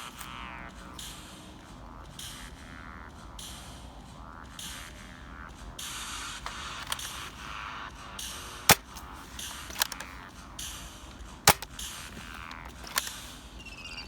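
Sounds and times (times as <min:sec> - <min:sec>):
blaster clicks: 0:06.4 - 0:07.4, 0:08.7 - 0:10.3, 0:11.5 - 0:13.3
foam dart blaster pops: 0:08.7 - 0:10.1, 0:11.5 - 0:13.1.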